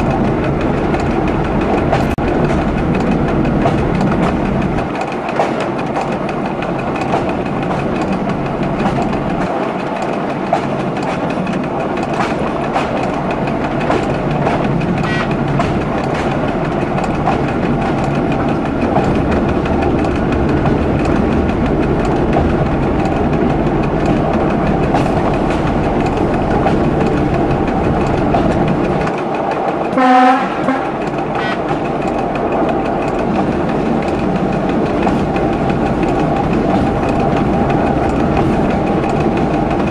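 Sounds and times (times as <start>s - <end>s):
train rumbling: 0.0s - 39.9s
wheels clicking over rail joints: 0.0s - 39.9s
train horn blast: 30.0s - 31.6s.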